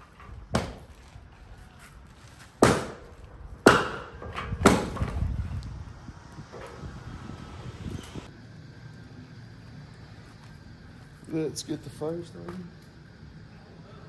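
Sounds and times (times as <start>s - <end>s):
axe chopping firewood: 0.0s - 1.2s, 2.6s - 5.4s.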